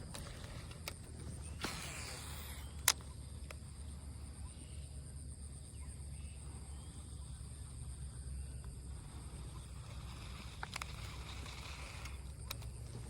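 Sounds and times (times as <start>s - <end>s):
faint high whine: 0.0s - 13.0s
sharp click: 0.1s - 3.6s.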